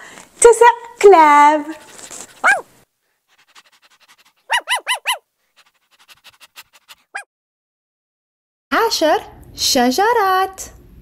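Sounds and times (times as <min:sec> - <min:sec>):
small dog yapping: 0:01.7 - 0:02.7, 0:03.4 - 0:07.3.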